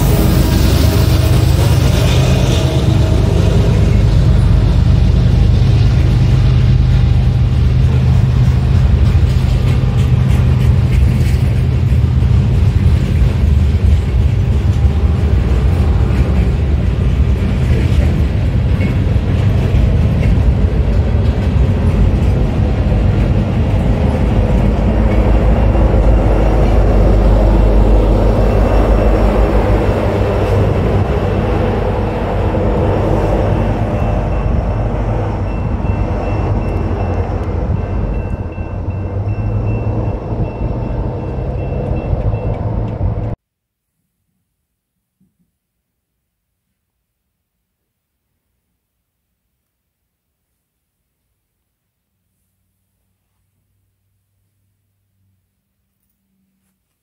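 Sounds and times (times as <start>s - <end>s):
diesel locomotive engine rumble: 0.0s - 43.4s
freight train wheels rolling: 0.0s - 43.4s.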